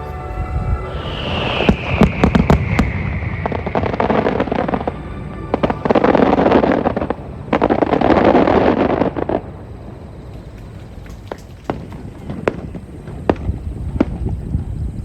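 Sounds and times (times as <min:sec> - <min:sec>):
music: 0:00.0 - 0:02.4, 0:03.7 - 0:08.7
fireworks bangs and crackling: 0:00.0 - 0:15.0.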